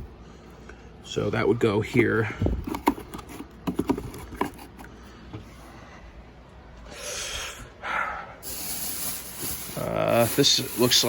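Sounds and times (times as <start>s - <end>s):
soft rustling hissing noises: 8.4s - 11.0s.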